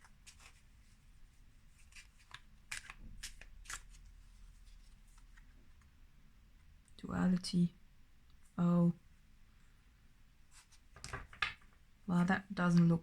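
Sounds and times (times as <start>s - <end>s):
cards shuffling: 1.8s - 5.5s, 10.6s - 11.6s.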